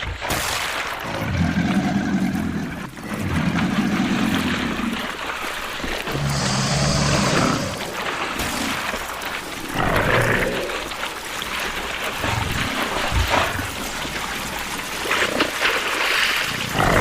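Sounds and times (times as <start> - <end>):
animal calling low-pitched: 6.0 - 8.1.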